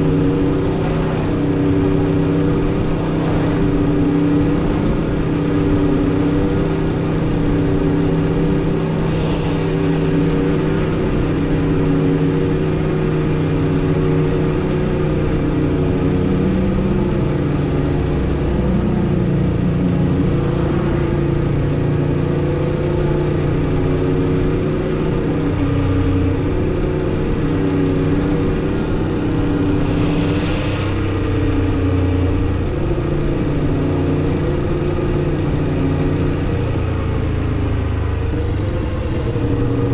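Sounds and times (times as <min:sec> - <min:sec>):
rushing swells: 0:00.0 - 0:06.7, 0:08.5 - 0:13.0, 0:27.8 - 0:33.2.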